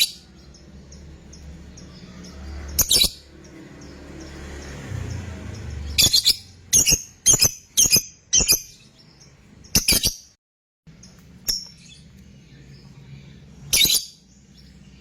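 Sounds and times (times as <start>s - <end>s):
lovebird chirping shrilly: 5.8s - 8.9s, 9.7s - 10.4s, 13.7s - 14.2s.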